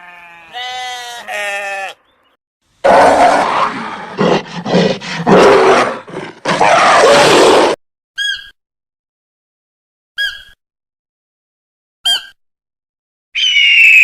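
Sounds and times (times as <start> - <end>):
large animal roaring: 2.8 - 7.8.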